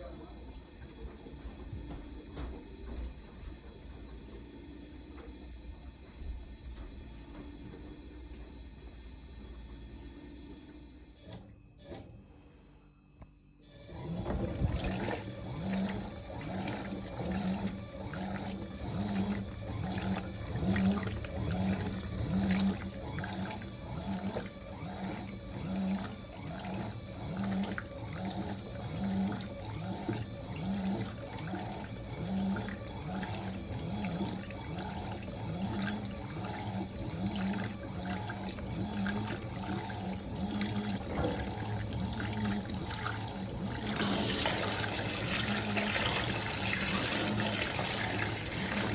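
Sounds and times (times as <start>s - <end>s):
washing machine running: 0.0s - 48.9s
water pouring into tub: 14.2s - 48.9s.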